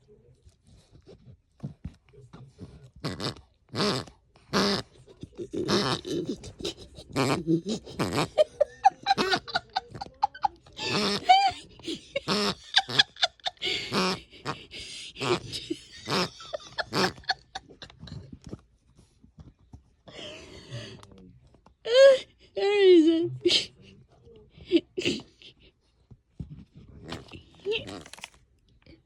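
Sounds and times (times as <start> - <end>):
puppy grunting and squealing: 3.0 - 17.6.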